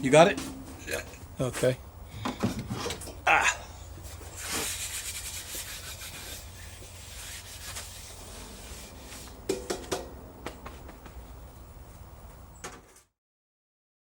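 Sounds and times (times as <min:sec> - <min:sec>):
steady low hum: 0:00.0 - 0:13.0
rubbing and handling on wood: 0:04.0 - 0:09.4.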